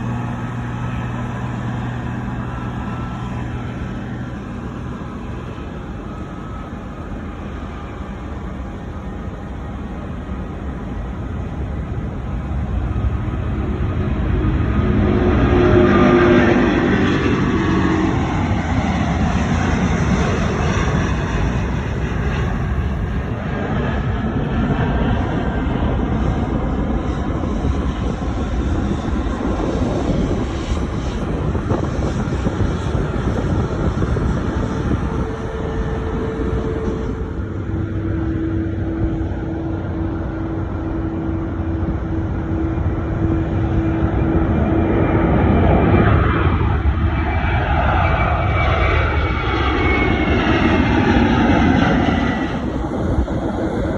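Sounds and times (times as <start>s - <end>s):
jet engine rumble: 0.0s - 53.9s
steady hum: 30.3s - 46.9s.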